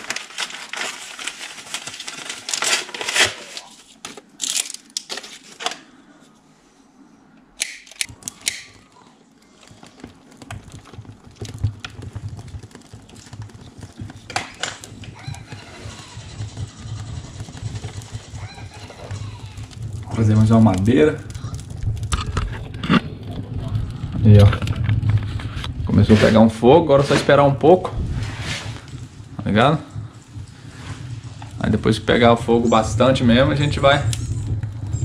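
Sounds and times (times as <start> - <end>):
fire rushing and crackling: 0.0 - 5.7, 8.0 - 35.0
paper and firewood rustling: 0.0 - 5.9, 9.4 - 35.0.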